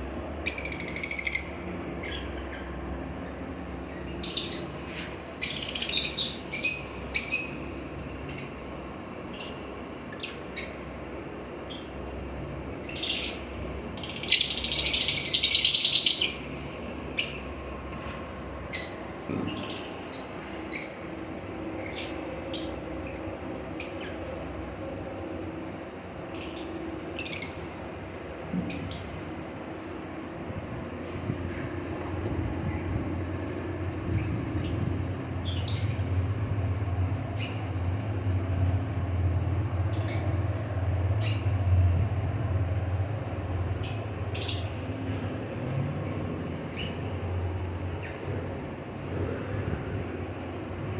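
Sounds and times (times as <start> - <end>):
steady low hum: 0.0 - 50.9
parrots chattering rapidly: 14.0 - 16.5
parrots squawking: 14.1 - 16.5.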